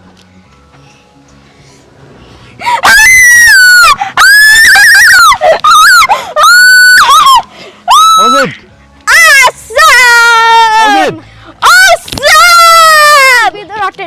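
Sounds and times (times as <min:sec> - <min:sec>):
person screaming: 0:09.1 - 0:13.3.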